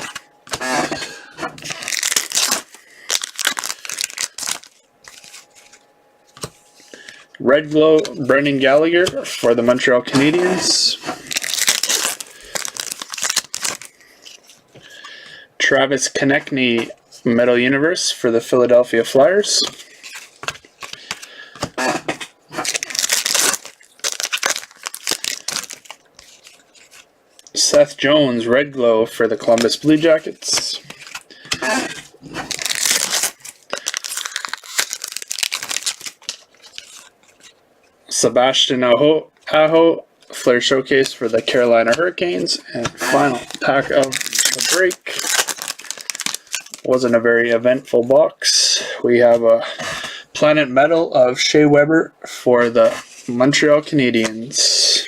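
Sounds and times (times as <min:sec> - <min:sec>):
plastic wrapper crinkling and tearing: 0:01.6 - 0:07.2, 0:10.2 - 0:14.7, 0:19.6 - 0:21.9, 0:22.5 - 0:27.6, 0:29.4 - 0:37.6, 0:40.3 - 0:47.1
trading cards shuffled by hand: 0:19.6 - 0:27.1, 0:29.4 - 0:37.6.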